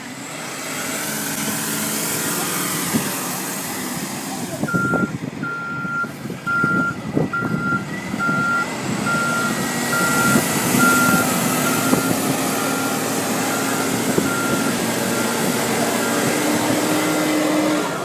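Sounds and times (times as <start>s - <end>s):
truck engine running: 0.0s - 18.0s
reversing alarm beeping: 4.7s - 16.4s.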